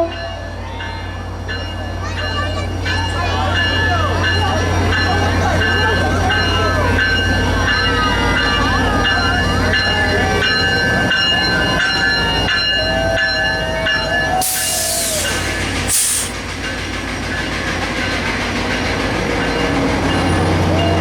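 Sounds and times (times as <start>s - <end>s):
train rumbling by: 0.0s - 21.0s
loud hiss bursts: 14.4s - 18.4s.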